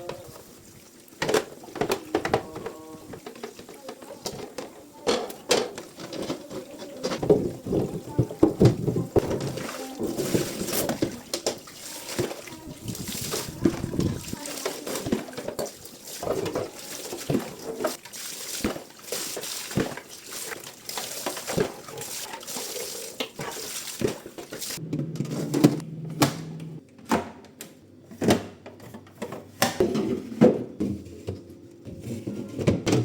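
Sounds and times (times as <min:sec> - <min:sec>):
tap water running into sink: 0:00.0 - 0:24.8
knocks and clatter of dishes: 0:01.2 - 0:11.6.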